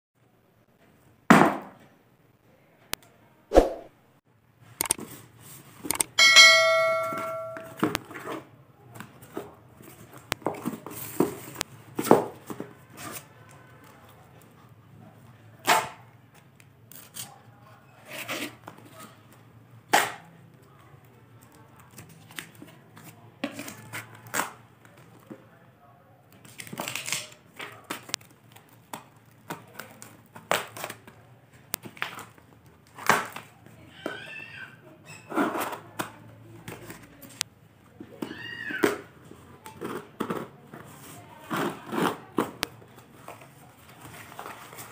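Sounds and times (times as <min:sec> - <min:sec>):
bell-like ding: 0:06.2 - 0:07.8
knife slicing tape and cardboard: 0:41.5 - 0:42.6.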